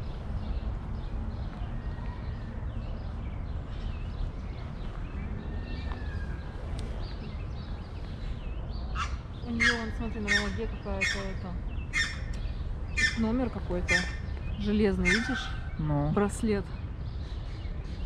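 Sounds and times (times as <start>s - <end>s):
small birds chirping: 0.0s - 18.0s
harsh bird squawk: 8.9s - 12.3s, 12.9s - 14.3s, 15.0s - 15.8s.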